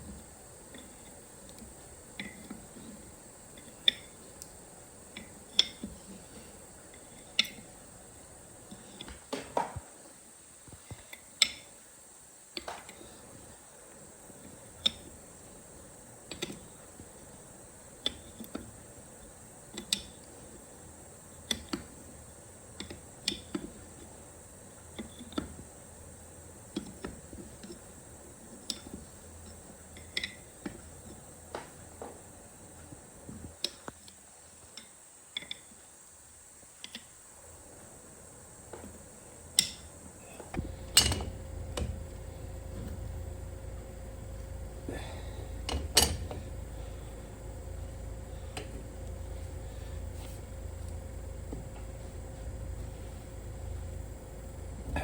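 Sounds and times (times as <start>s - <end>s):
steady low hum: 0.0s - 55.0s
light metallic clicks and knocks: 40.5s - 42.1s, 45.6s - 46.5s.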